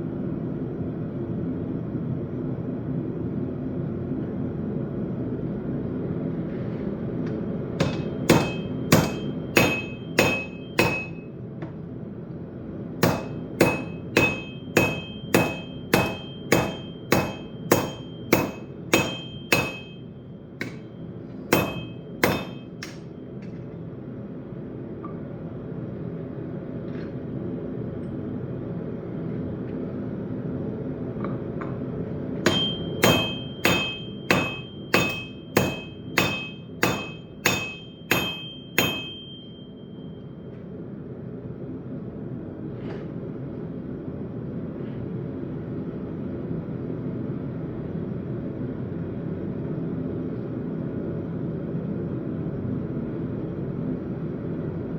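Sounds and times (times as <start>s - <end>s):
anvil ringing: 7.8s - 11.3s, 13.0s - 20.9s, 21.5s - 23.1s, 32.4s - 40.2s
hammer striking steel on anvil: 7.8s - 11.4s, 13.0s - 23.6s, 32.4s - 40.2s.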